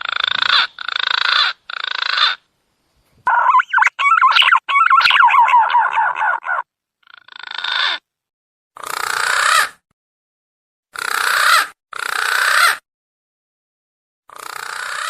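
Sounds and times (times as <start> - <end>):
harsh rasping calls: 0.0 - 2.5, 3.3 - 8.0, 14.3 - 15.0
whistled warbling pigeon call: 3.3 - 6.6.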